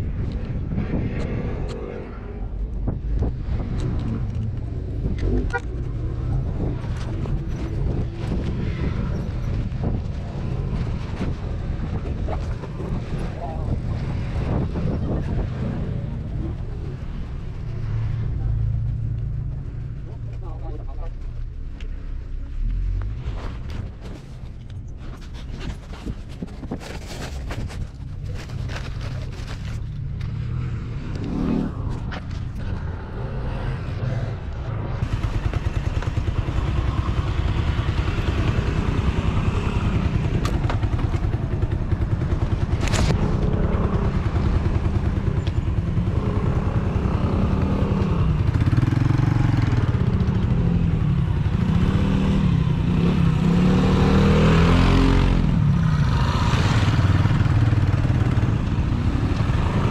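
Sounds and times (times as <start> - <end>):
motorcycle engine revving: 29.6 - 59.9.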